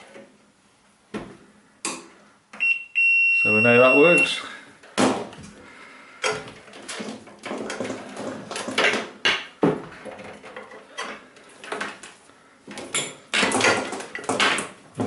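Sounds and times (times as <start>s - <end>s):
knocks and metallic clatter: 6.2s - 12.1s, 12.7s - 15.0s.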